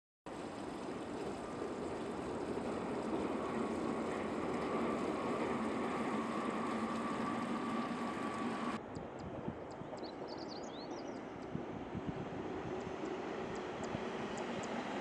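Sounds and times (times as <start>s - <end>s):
thin steady whine: 0.8s - 8.8s
heavy electric machinery hum: 0.9s - 8.8s.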